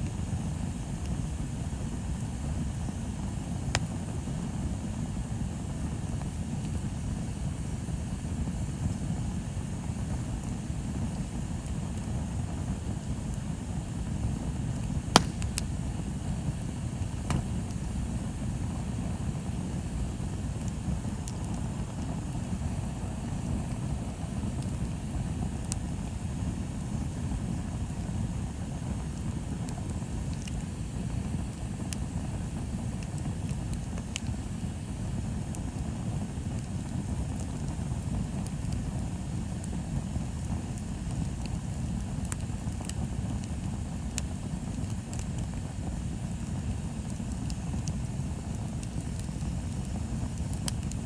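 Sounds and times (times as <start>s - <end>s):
bonfire rumbling and crackling: 0.0s - 51.0s
loud fire pop: 15.1s - 15.8s, 17.2s - 17.8s.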